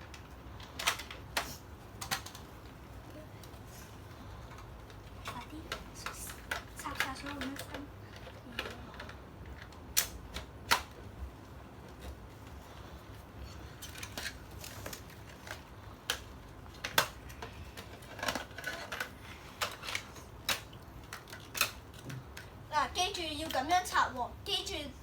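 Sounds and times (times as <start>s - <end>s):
plastic parts clicking into place: 0.0s - 2.5s, 4.5s - 11.1s, 13.8s - 22.5s.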